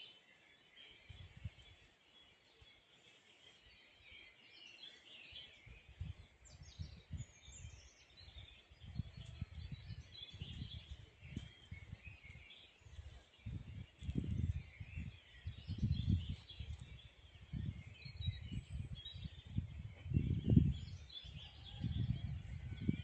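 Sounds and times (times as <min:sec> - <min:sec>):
birds chirping and twittering: 0:00.0 - 0:23.0
wind buffeting microphone: 0:01.0 - 0:01.9, 0:05.4 - 0:23.0.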